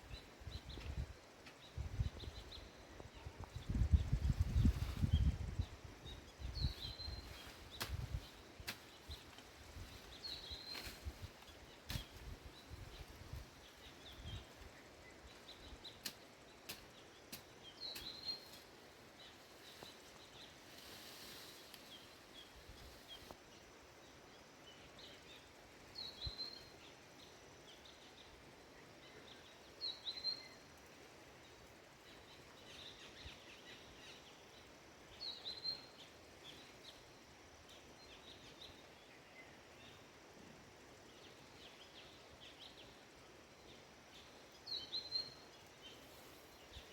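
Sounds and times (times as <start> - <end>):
faint bird chirps: 24.6 - 30.8, 43.6 - 46.9.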